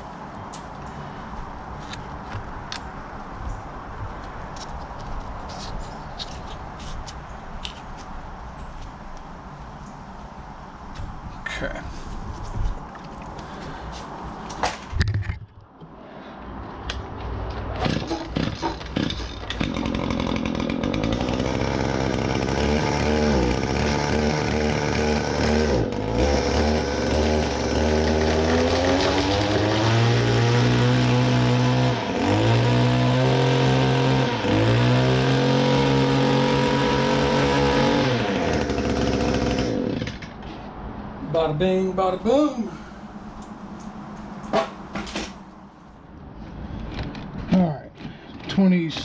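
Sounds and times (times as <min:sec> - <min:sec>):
string trimmer starter pulls: 0:17.8 - 0:30.3, 0:33.5 - 0:40.4
string trimmer engine revving: 0:17.8 - 0:40.3.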